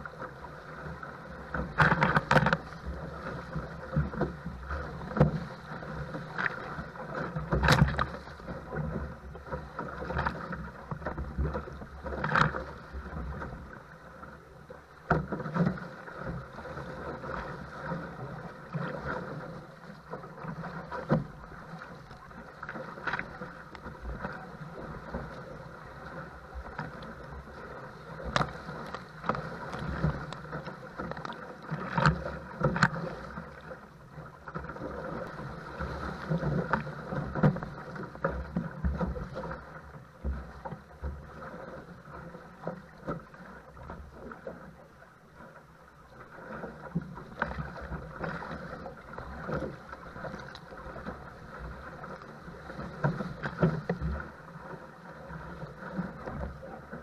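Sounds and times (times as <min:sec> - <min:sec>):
rush of water: 0:00.0 - 0:57.0
water splashing against boat: 0:00.0 - 0:57.0.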